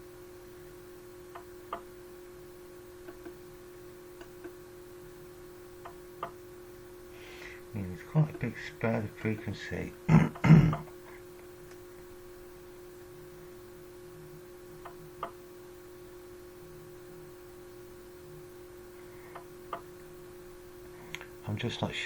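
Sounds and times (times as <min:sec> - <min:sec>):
steady electrical hum: 0:00.0 - 0:22.0
faint click: 0:21.1 - 0:21.3.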